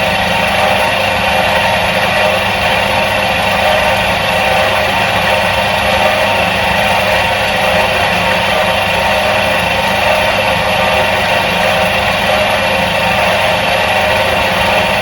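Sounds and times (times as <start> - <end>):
washing machine motor humming: 0.0 - 15.0.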